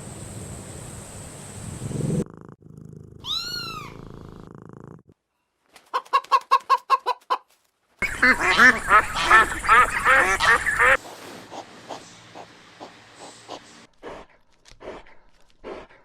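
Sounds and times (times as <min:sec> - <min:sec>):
cat meowing: 0:03.2 - 0:04.1
short evenly spaced calls: 0:08.0 - 0:13.9
birds calling: 0:08.0 - 0:14.2.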